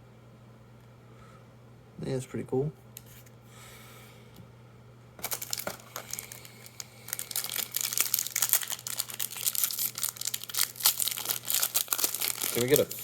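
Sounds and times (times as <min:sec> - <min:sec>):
foil wrapper crinkling and tearing: 0:05.2 - 0:13.0.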